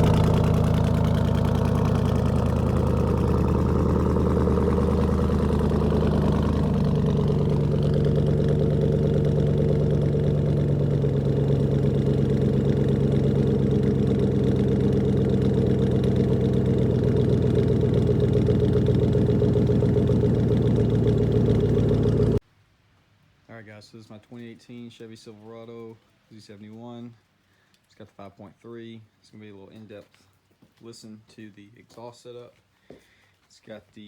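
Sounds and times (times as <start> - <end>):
truck engine idling: 0.0 - 22.4.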